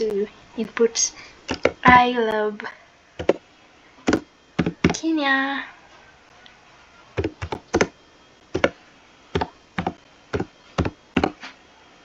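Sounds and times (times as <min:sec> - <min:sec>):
keyboard key clicks: 0:07.2 - 0:07.9.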